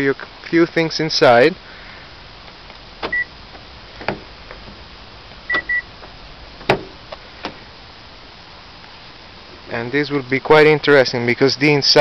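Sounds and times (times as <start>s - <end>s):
double electronic beep: 5.5s - 5.8s
sharp clicks and knocks: 5.5s - 7.6s.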